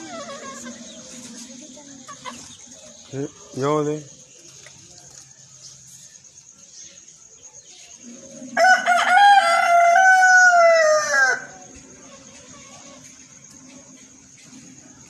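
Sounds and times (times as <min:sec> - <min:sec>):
rooster crowing: 0:08.5 - 0:11.7.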